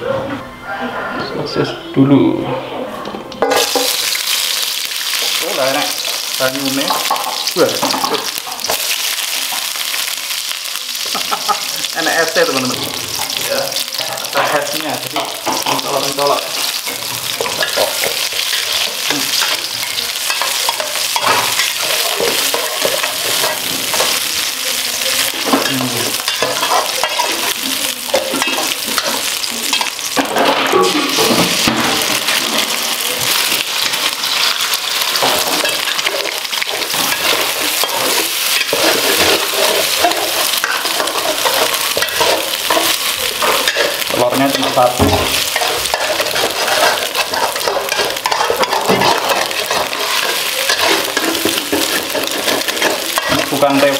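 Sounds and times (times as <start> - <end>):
sausages sizzling in oil: 3.4 - 53.9
metal spatula scraping pan: 14.3 - 53.9.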